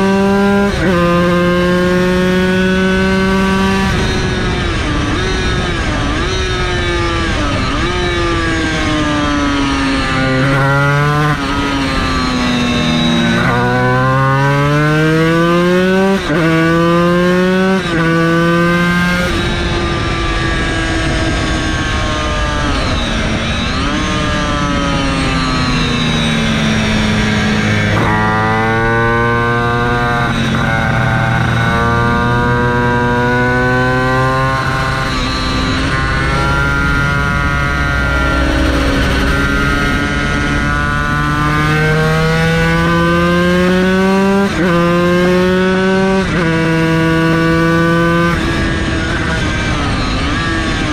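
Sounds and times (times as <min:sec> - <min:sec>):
racing engine at full throttle: 0:00.0 - 0:50.9.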